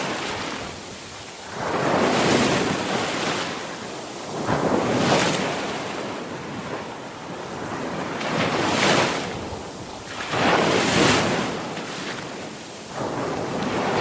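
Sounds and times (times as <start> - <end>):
sea waves washing on shore: 0.0 - 14.0
big wave crashes: 12.9 - 14.0.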